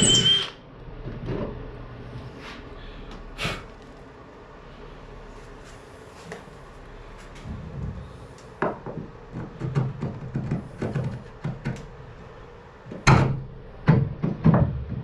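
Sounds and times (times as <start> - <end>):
wood and tools knocking: 8.6 - 11.9, 12.9 - 15.0.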